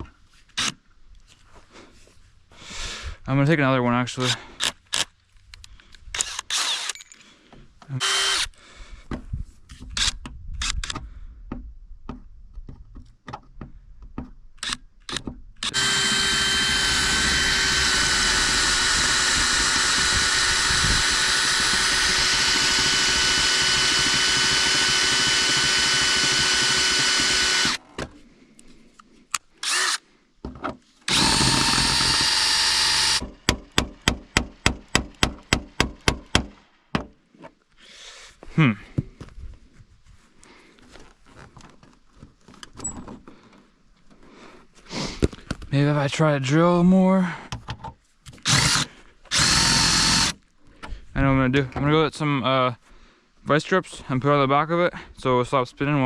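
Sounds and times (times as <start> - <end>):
power drill whining: 6.2 - 7.2, 7.9 - 8.6, 14.6 - 27.8, 29.6 - 30.0, 31.1 - 33.3, 48.3 - 50.4.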